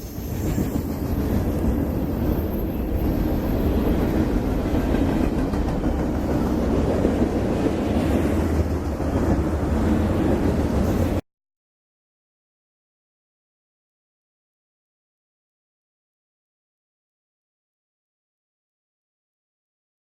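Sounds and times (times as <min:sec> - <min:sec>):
train running past on rails: 0:00.0 - 0:11.2.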